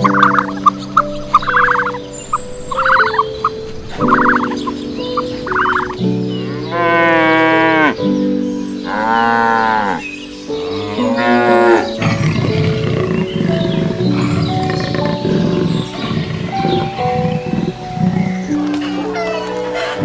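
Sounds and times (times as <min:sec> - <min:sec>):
background music: 0:00.0 - 0:20.0
cow mooing: 0:06.6 - 0:08.0, 0:08.9 - 0:10.0, 0:10.6 - 0:20.0.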